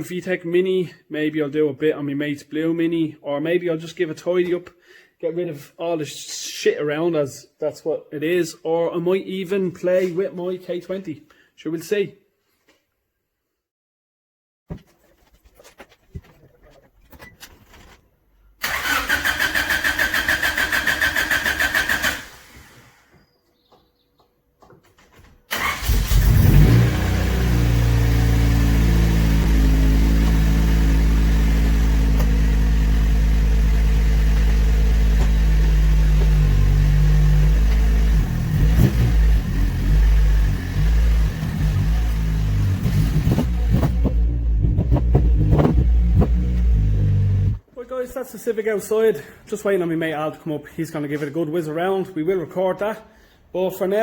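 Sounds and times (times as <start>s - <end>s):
starter motor cranking: 18.6s - 23.1s
car engine idling: 26.8s - 38.7s.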